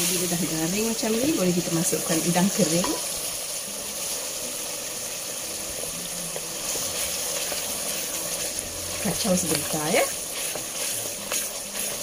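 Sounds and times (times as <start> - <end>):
paste sizzling in hot oil: 0.0 - 12.0
wooden spatula stirring: 6.3 - 12.0.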